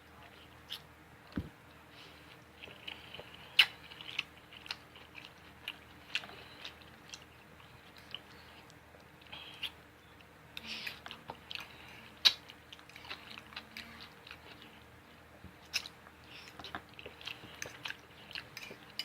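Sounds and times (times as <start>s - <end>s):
person chewing food: 0.2s - 19.0s.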